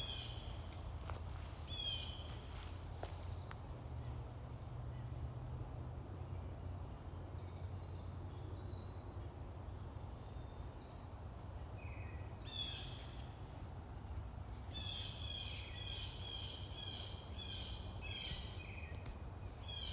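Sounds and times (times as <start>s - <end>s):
songbirds singing: 0.0s - 3.7s, 14.0s - 19.9s.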